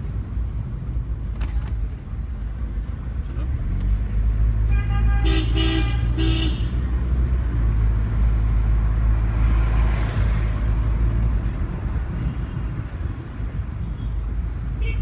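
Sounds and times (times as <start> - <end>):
car engine rumble and road noise: 0.0 - 15.0
car horn honking: 4.7 - 6.9, 14.8 - 15.0.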